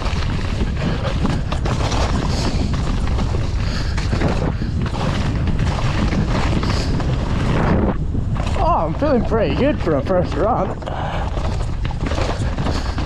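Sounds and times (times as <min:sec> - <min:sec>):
bike knocking and rattling: 0:00.0 - 0:13.0
wind rumbling on microphone: 0:00.0 - 0:13.0.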